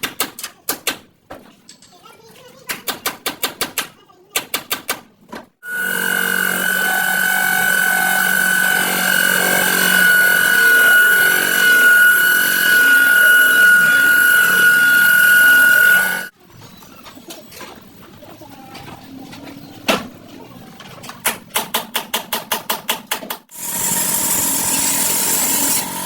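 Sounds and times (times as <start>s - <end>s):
angle grinder on sheet metal: 5.6s - 16.3s, 23.5s - 26.0s.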